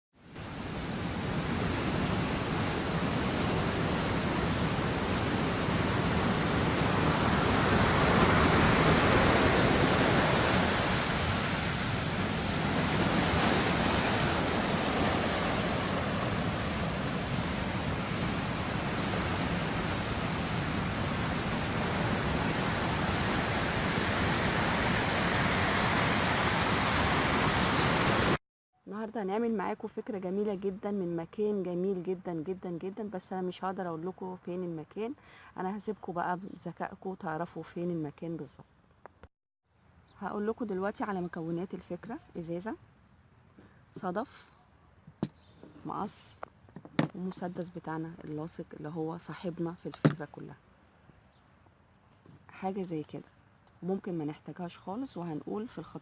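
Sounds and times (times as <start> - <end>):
sea waves washing onto shore: 0.4 - 28.4.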